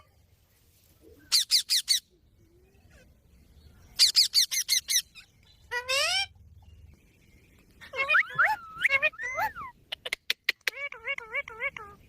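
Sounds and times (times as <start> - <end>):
parrot calling: 4.0 - 6.3, 7.8 - 12.0.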